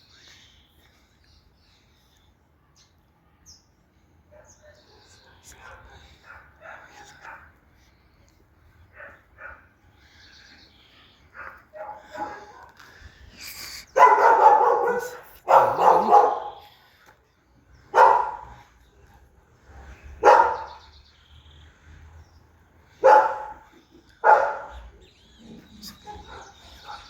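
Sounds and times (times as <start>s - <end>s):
dog barking: 4.3s - 7.6s, 8.9s - 9.7s, 11.4s - 12.8s, 13.9s - 16.7s, 17.9s - 18.6s, 20.2s - 20.8s, 23.0s - 24.9s, 26.0s - 27.0s.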